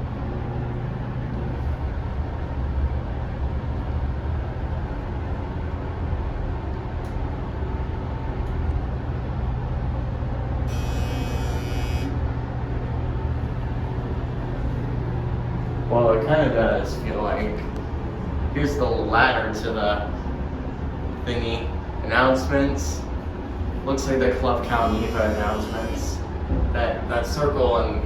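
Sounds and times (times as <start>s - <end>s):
elevator hum: 0.0s - 28.0s
high-pitched hiss: 24.7s - 26.2s.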